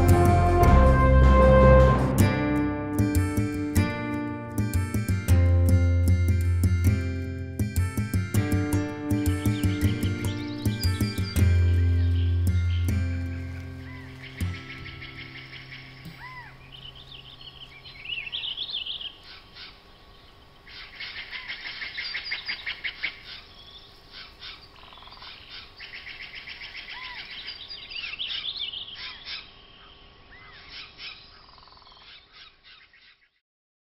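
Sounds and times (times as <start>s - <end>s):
low drone: 0.0s - 3.7s
small birds chirping: 9.1s - 33.4s.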